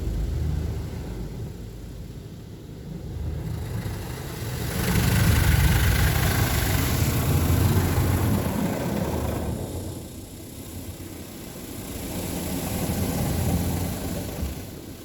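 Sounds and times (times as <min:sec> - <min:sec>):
car wash machine hum: 0:03.2 - 0:15.0.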